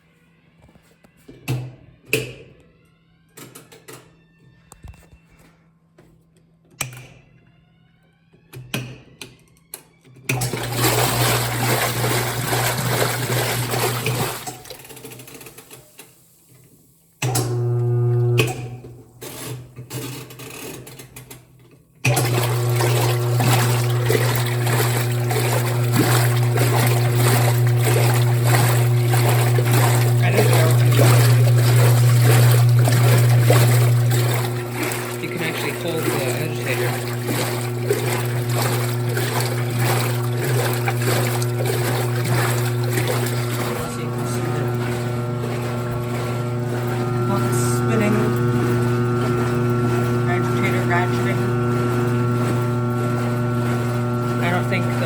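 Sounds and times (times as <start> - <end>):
washing machine motor humming: 10.3 - 16.2, 17.2 - 19.2, 22.0 - 55.0
water churning in tub: 10.4 - 15.6, 22.1 - 55.0.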